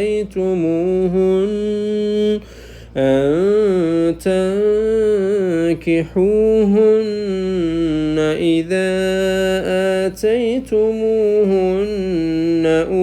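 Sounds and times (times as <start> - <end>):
man chanting melodic recitation: 0.0 - 13.0.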